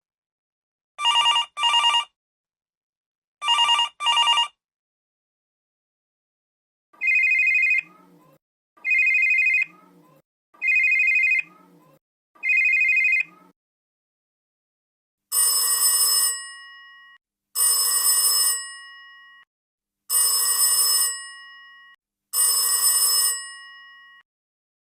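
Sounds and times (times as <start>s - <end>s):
old telephone bell ringing: 15.3s - 19.4s, 20.1s - 24.2s.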